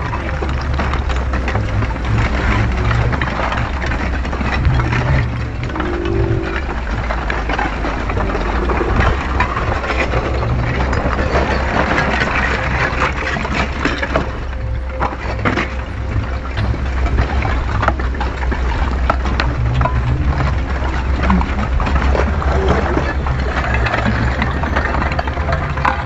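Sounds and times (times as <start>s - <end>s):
deep volcanic rumble: 0.0s - 26.0s
lava crackling and cracking: 0.0s - 26.0s.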